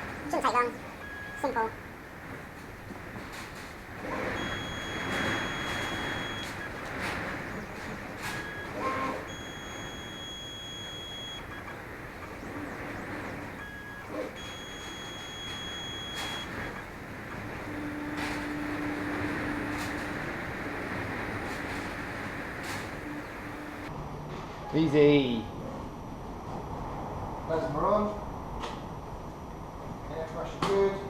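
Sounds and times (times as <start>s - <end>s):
gantry motors whining: 0.0s - 23.9s
steady hiss: 3.4s - 23.9s.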